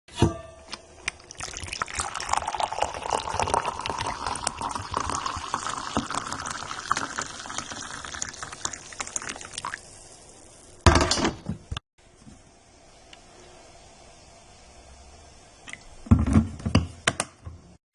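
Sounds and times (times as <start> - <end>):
liquid pouring into container: 1.1 - 9.9.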